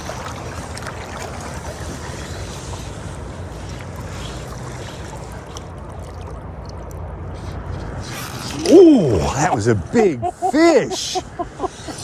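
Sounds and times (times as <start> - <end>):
river water rushing: 8.5 - 12.0.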